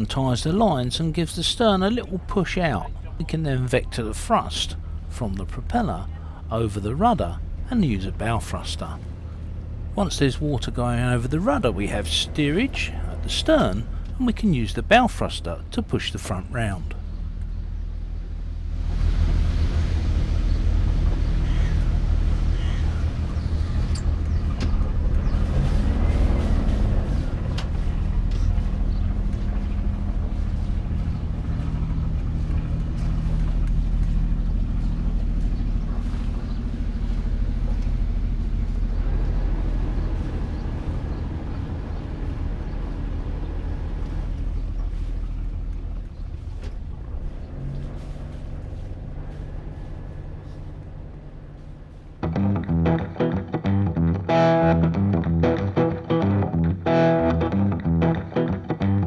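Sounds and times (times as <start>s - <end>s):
boat diesel engine running: 0.0s - 59.0s
rising and falling whine: 52.2s - 59.0s.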